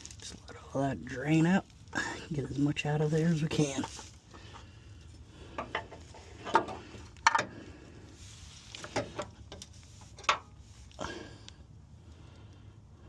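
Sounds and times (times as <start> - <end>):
metallic clicks and knocks: 5.6 - 7.5.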